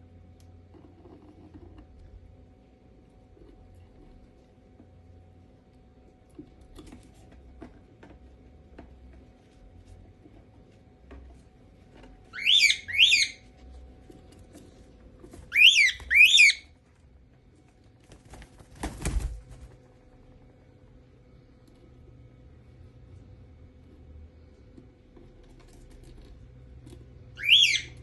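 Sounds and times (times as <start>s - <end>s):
cockatiel whistling: 12.3s - 13.4s, 15.5s - 16.7s, 27.4s - 28.0s.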